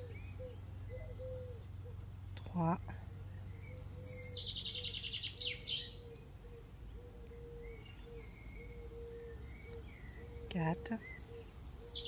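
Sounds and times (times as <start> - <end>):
bird singing a fast trill: 0.0 - 12.0.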